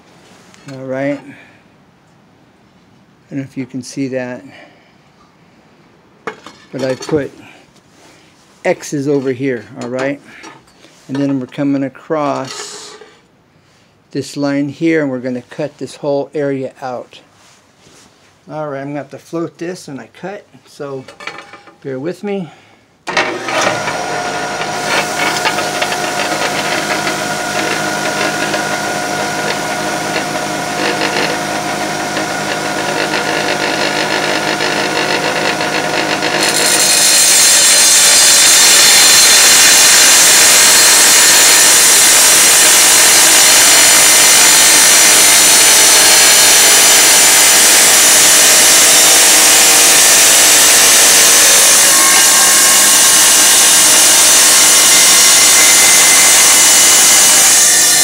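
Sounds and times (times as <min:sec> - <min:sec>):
tile saw motor whine: 0:23.1 - 0:58.0
saw blade cutting tile hiss: 0:30.2 - 0:58.0.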